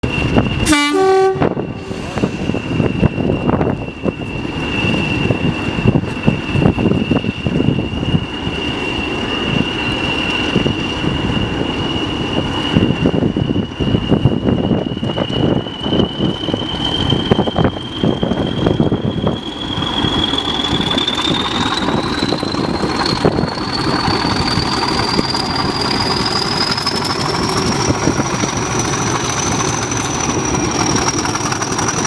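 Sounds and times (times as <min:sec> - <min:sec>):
diesel locomotive engine throbbing: 0:00.0 - 0:32.0
turbocharger whistle: 0:00.0 - 0:32.0
train horn blast: 0:00.6 - 0:02.6.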